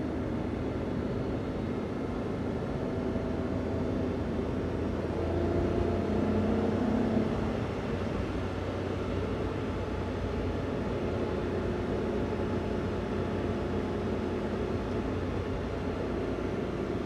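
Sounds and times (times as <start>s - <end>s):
road noise: 0.0s - 17.0s
van engine running: 7.2s - 17.0s.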